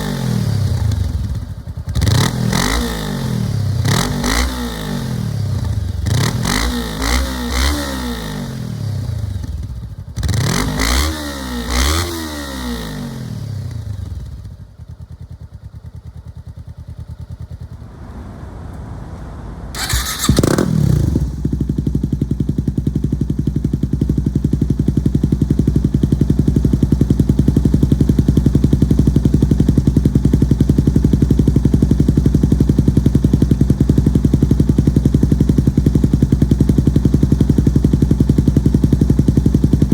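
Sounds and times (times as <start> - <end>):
motorcycle engine revving: 0.0 - 14.6, 15.2 - 39.9
motorcycle engine starting with bang: 17.0 - 22.6.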